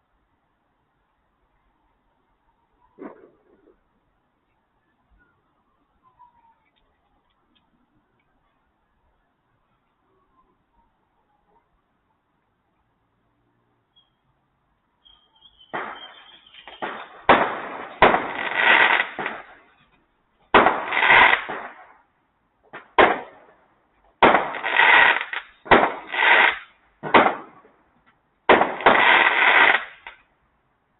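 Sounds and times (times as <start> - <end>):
fireworks bangs: 3.0 - 3.8, 15.5 - 22.0, 22.7 - 23.6, 24.2 - 27.8, 28.5 - 30.2.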